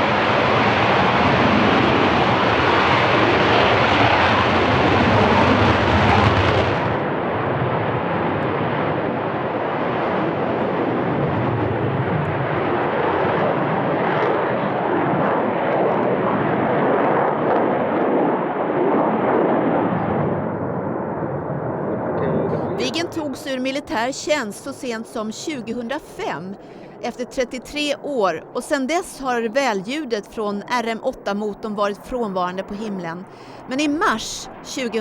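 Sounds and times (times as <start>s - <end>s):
jet engine roaring: 0.0s - 30.3s.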